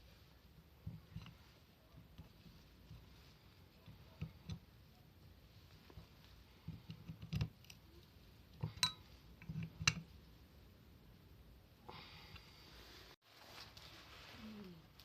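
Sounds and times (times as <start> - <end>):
metallic clink: 8.7 - 9.1.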